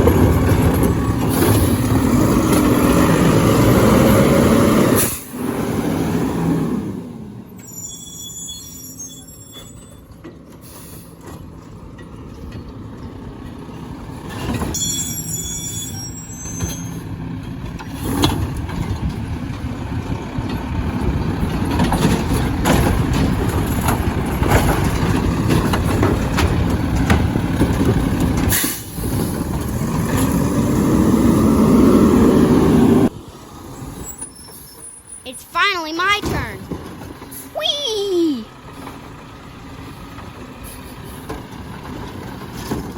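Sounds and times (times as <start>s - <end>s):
garbage truck engine revving: 0.0s - 7.5s, 17.0s - 33.8s
hydraulic hisses and squeals: 7.6s - 10.1s, 14.7s - 17.1s, 33.9s - 35.2s.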